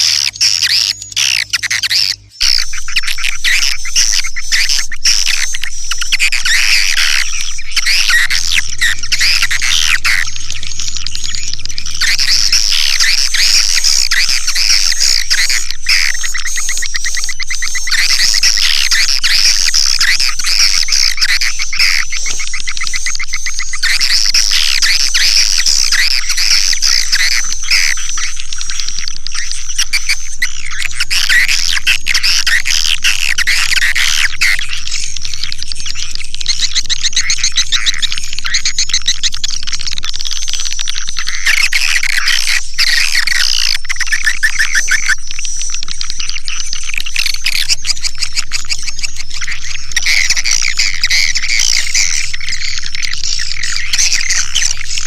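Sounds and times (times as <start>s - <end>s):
swiftlets twittering: 0.0s - 55.0s.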